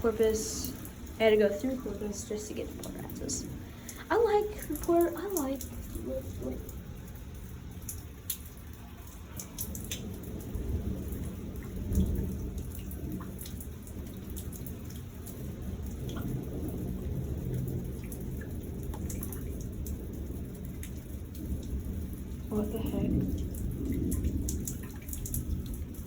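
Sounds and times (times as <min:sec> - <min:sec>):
drops ticking: 0:00.0 - 0:10.5
steady rain: 0:00.0 - 0:26.0
thunder rumbling: 0:00.0 - 0:26.0.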